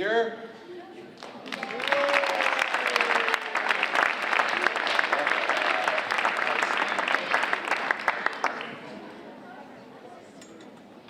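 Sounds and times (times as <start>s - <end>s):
children clapping: 1.2s - 8.8s.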